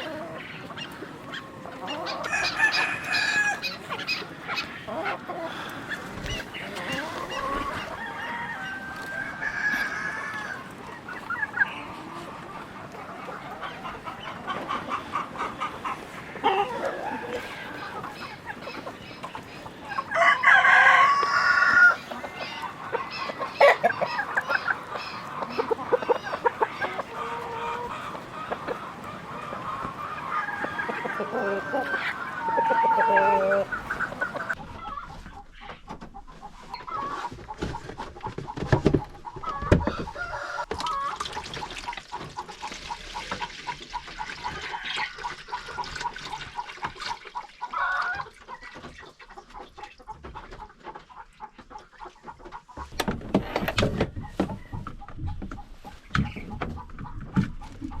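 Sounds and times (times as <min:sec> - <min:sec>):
chickens clucking: 0:00.0 - 0:58.0
rooster crowing loudly: 0:02.2 - 0:03.7, 0:07.6 - 0:10.7, 0:20.1 - 0:22.4, 0:30.4 - 0:33.7.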